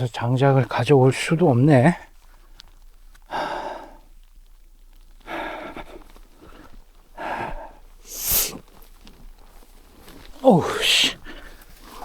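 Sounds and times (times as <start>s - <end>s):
man breathing hard: 3.3s - 4.1s, 5.2s - 8.6s, 10.4s - 12.0s.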